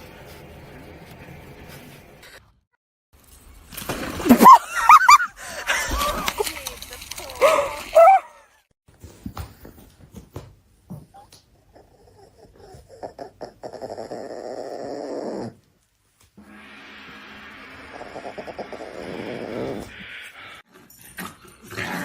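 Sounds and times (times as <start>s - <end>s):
dog growling: 11.7s - 15.6s, 17.3s - 20.6s.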